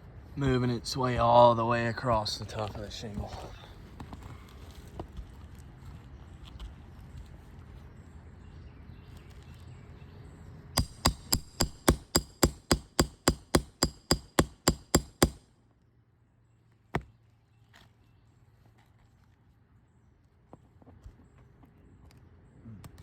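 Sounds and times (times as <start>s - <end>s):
hammer striking metal: 10.8s - 15.4s.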